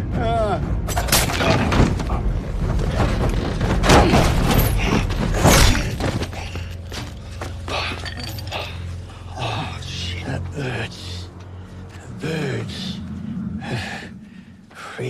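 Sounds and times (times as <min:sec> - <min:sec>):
low rumbling music score: 0:00.0 - 0:15.0
heavy thumps and crashes: 0:00.9 - 0:06.5.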